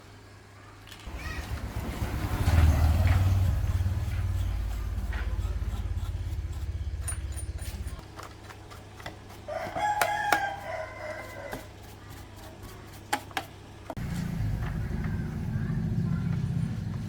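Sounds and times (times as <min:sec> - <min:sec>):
motor running with low throb: 0:01.4 - 0:08.0, 0:14.0 - 0:17.0
rooster crowing: 0:09.4 - 0:11.7.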